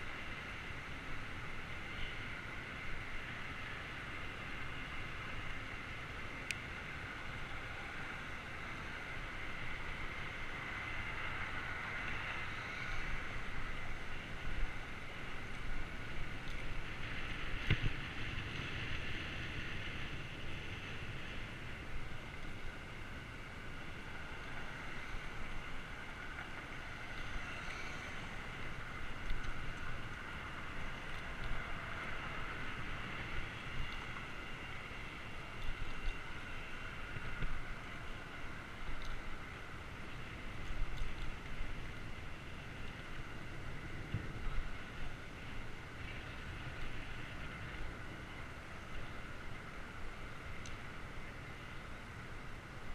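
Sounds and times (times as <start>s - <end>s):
bicycle rolling on pavement: 0.0s - 52.9s.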